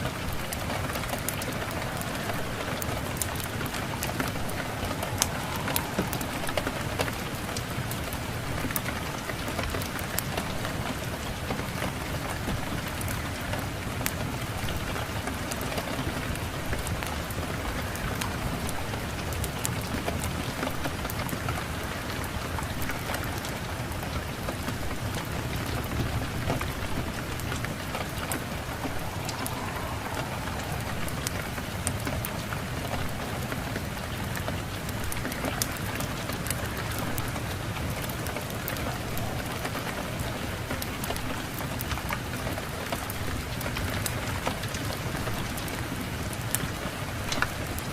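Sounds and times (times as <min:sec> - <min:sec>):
steady rain: 0:00.0 - 0:47.9.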